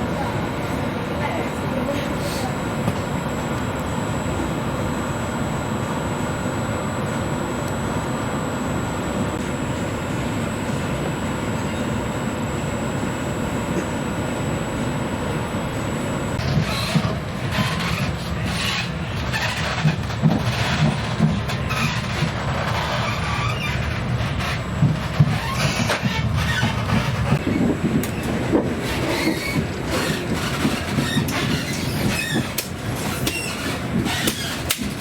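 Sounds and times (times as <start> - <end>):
train running noise: 0.0 - 35.0.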